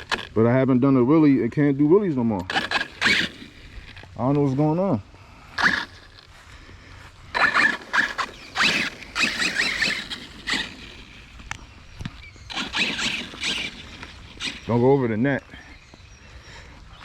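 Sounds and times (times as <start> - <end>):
electric motor whining: 2.5 - 4.1, 5.5 - 6.4, 7.0 - 17.0.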